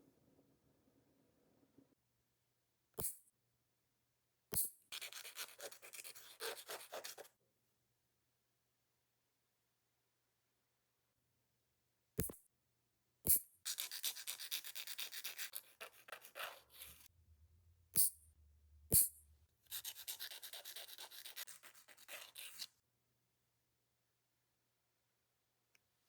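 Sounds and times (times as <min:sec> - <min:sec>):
nail file rasping: 0:04.5 - 0:07.3, 0:13.3 - 0:17.1, 0:18.0 - 0:18.2, 0:18.9 - 0:22.7.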